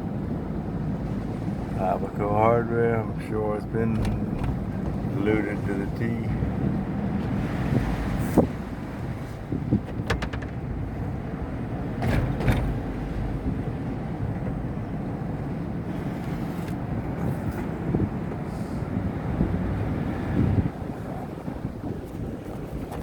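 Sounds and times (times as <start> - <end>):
engine and road noise rumble: 0.0 - 23.0
sharp knocks and rattles: 3.9 - 5.2, 9.8 - 11.2, 12.0 - 13.1.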